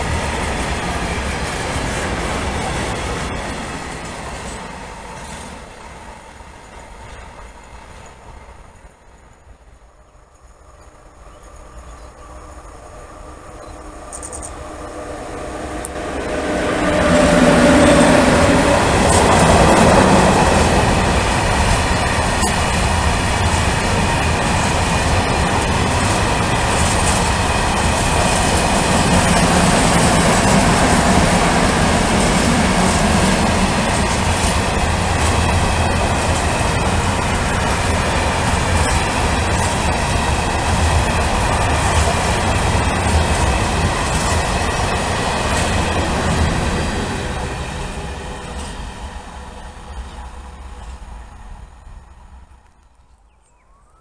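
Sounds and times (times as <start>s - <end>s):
electric locomotive motor hum: 0.0s - 53.1s
wheels clacking over rail joints: 14.0s - 49.1s.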